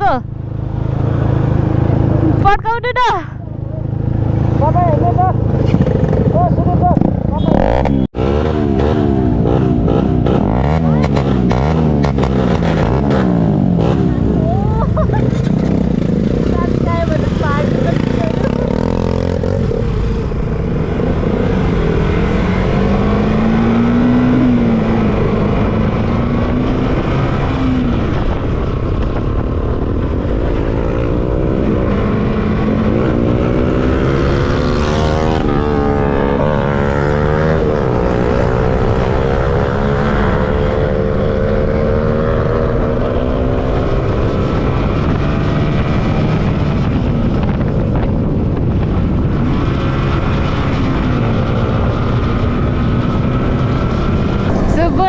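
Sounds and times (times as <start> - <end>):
motorcycle engines running: 0.0 - 55.0
wind on microphone: 3.8 - 7.9, 8.6 - 55.0.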